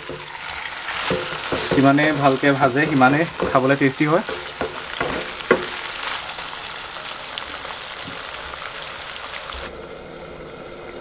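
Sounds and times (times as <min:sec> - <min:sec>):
wooden spatula knocking pan: 0:00.0 - 0:06.1
chicken sizzling in hot oil: 0:00.0 - 0:09.7.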